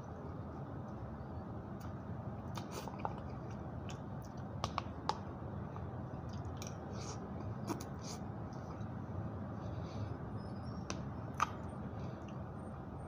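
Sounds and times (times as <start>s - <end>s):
low background noise: 0.0s - 13.0s
person chewing food: 11.3s - 12.4s.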